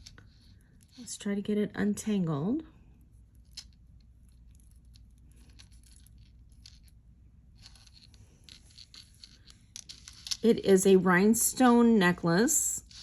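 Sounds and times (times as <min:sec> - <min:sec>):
necklace clicking and rustling: 0:00.0 - 0:01.1, 0:03.1 - 0:11.6.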